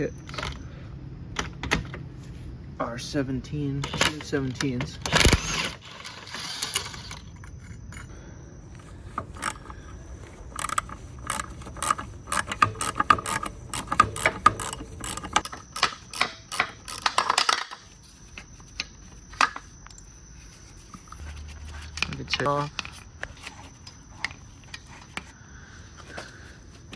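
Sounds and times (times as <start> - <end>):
ratchet wrench clicking: 9.1 - 9.8, 10.5 - 17.8.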